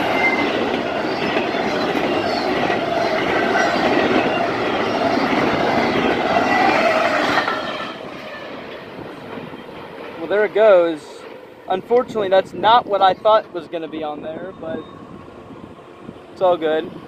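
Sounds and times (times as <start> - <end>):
high wheel squeals: 0.0 - 9.8, 13.1 - 16.3
train wheels rumbling on rail: 0.0 - 17.0.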